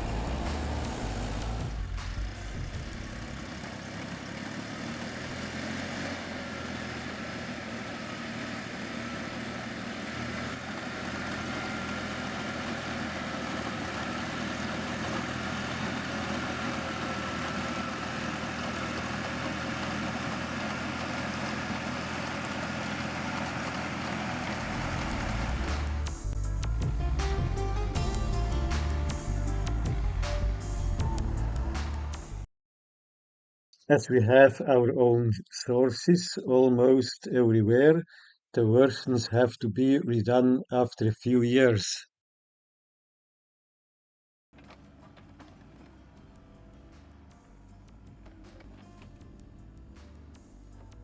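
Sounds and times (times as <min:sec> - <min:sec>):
farm machinery engine running: 0:00.0 - 0:32.4, 0:44.6 - 0:51.0.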